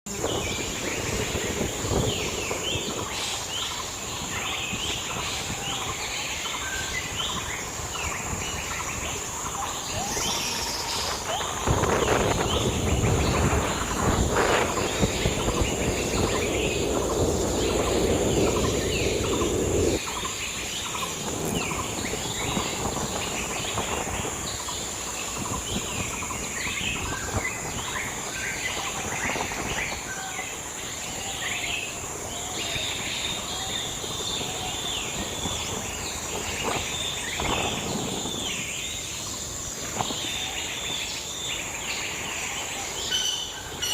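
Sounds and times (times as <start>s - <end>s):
birds chirping: 0.1s - 43.9s
high insect drone: 0.1s - 43.9s
loud rushing noise: 11.6s - 24.4s.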